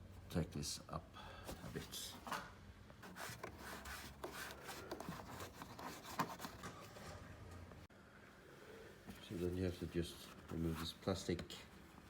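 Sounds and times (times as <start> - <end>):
plastic rubbing and scraping: 3.0 - 7.2.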